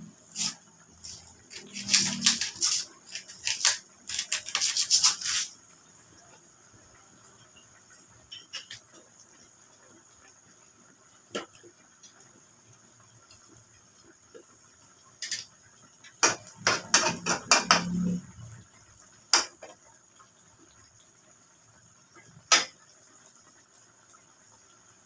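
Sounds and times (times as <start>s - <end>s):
utensils and cookware clinking: 0.3s - 5.6s, 8.2s - 9.0s, 15.2s - 15.5s.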